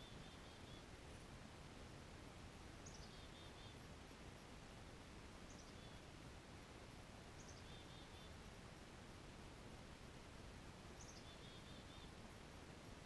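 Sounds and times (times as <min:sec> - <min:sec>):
small bird calling: 0:00.0 - 0:00.9, 0:02.8 - 0:03.8, 0:05.5 - 0:06.1, 0:07.4 - 0:08.4, 0:11.0 - 0:12.2
faint outdoor background noise: 0:00.0 - 0:13.0.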